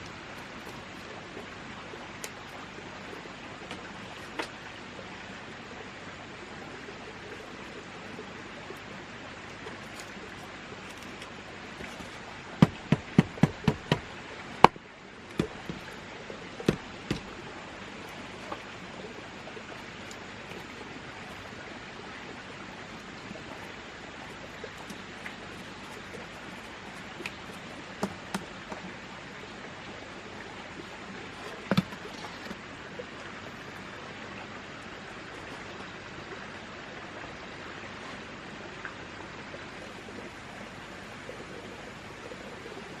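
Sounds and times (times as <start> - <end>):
sharp knocks: 12.6 - 14.8.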